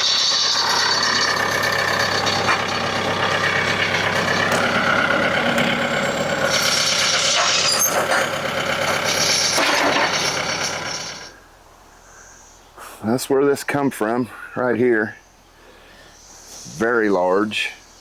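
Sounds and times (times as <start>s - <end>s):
tractor engine running: 0.0s - 11.3s.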